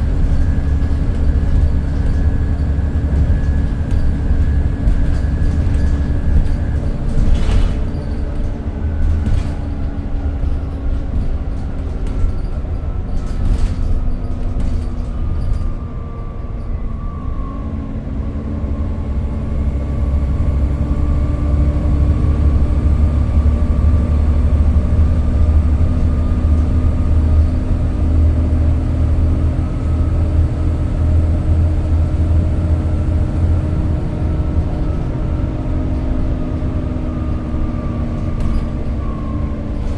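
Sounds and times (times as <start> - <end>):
sharp knocks and rattles: 0.0 - 15.7
bus diesel engine running: 0.0 - 39.9.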